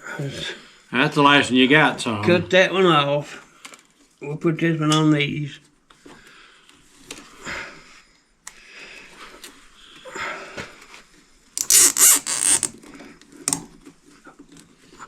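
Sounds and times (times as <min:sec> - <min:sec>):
plastic zip tie rasping: 0:11.6 - 0:12.8, 0:13.4 - 0:13.7.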